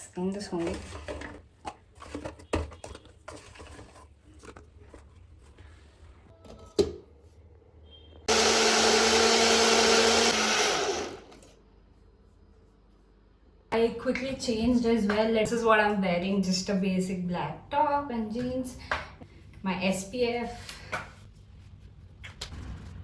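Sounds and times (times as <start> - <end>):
electric blender running: 8.3 - 11.5.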